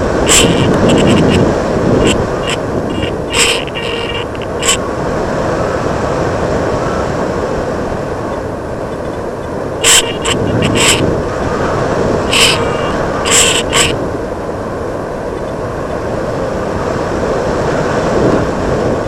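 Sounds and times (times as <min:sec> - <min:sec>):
rushing airflow: 0:00.0 - 0:15.2.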